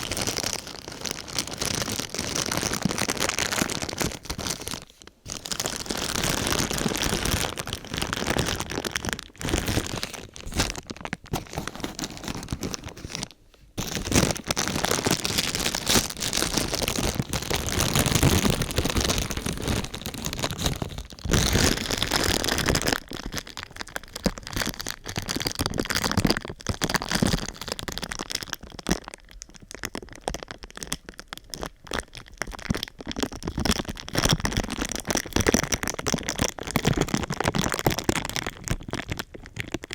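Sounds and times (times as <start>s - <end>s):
thin sheet material crinkling: 0.0s - 25.6s.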